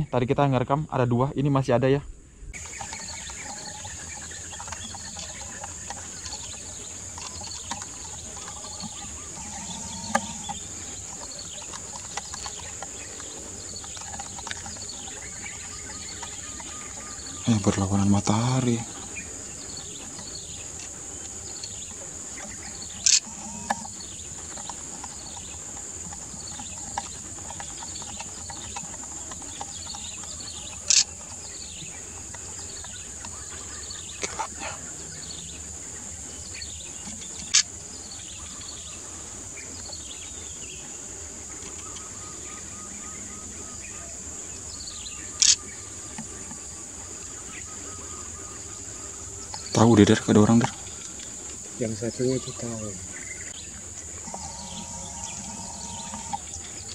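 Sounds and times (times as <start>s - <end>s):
high-pitched insect drone: 2.6s - 56.9s
short insect chirps: 2.6s - 56.9s
sharp clicks: 22.4s - 23.9s, 30.7s - 31.2s, 45.4s - 45.7s.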